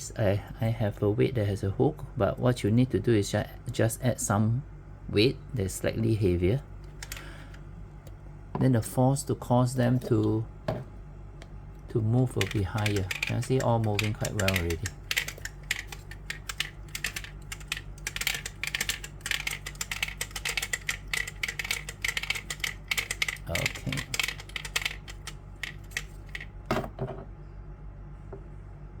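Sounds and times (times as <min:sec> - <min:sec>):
toy chickens pecking on board: 0:12.4 - 0:26.5.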